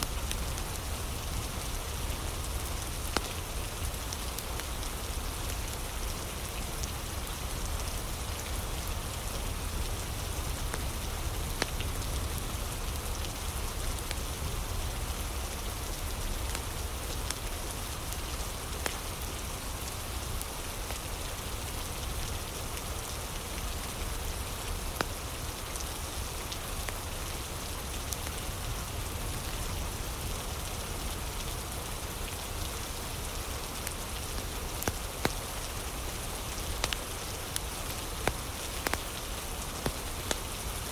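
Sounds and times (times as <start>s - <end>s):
fire crackling and popping: 0.0s - 5.0s, 18.2s - 19.1s, 33.8s - 40.9s
steady rain: 0.0s - 40.9s.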